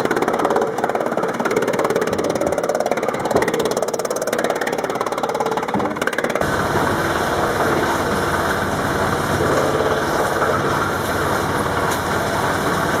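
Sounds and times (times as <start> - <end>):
wood chipper running with rattle: 0.0 - 13.0.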